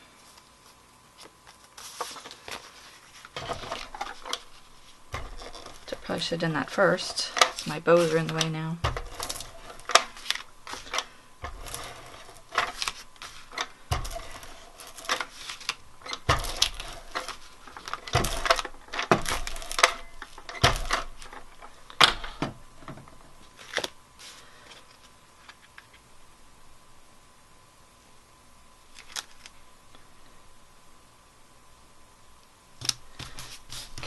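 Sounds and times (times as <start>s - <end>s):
paper being handled: 0.3s - 21.7s, 33.1s - 34.0s.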